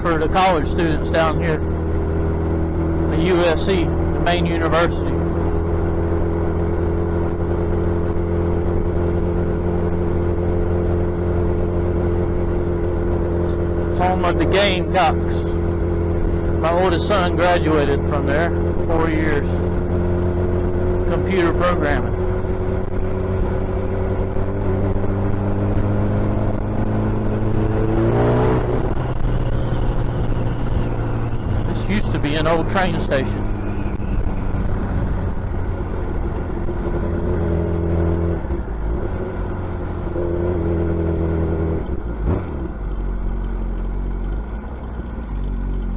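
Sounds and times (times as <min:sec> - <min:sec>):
motorcycle engine cruising: 0:00.0 - 0:45.9.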